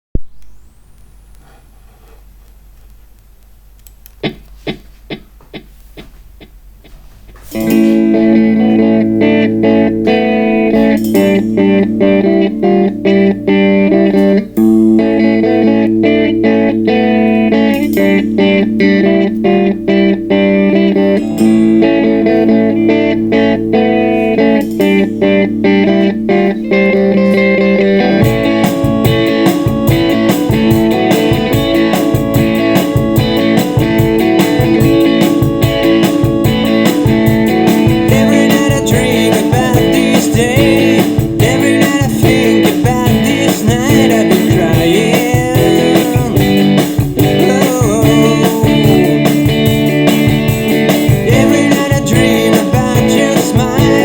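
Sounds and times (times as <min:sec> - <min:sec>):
organ chords: 0:02.6 - 0:54.0
drum kit: 0:04.2 - 0:12.3, 0:16.9 - 0:19.5, 0:21.0 - 0:25.5, 0:28.1 - 0:54.0
guitar playing: 0:04.2 - 0:54.0.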